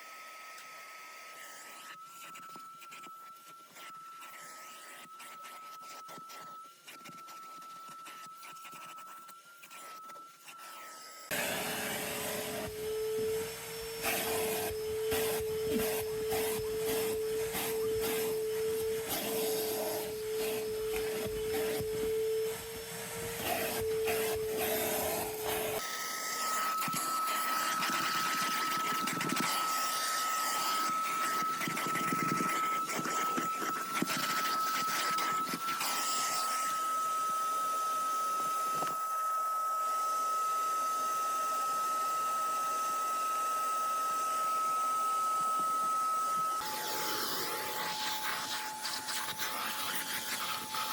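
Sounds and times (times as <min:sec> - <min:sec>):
vacuum motor whining: 0:00.0 - 0:50.9.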